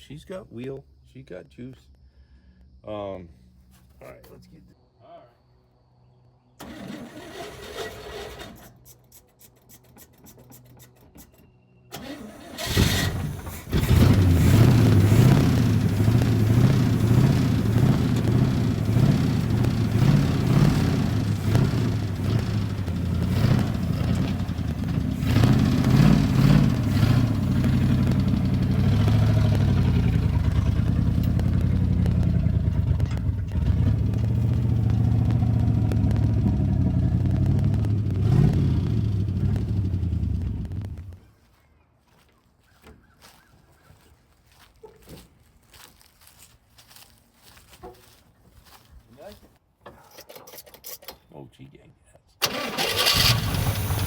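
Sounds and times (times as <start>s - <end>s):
truck engine cranking on starter: 6.6s - 8.8s, 11.9s - 41.2s, 52.4s - 54.0s
truck engine running loud: 12.6s - 41.2s, 52.8s - 54.0s.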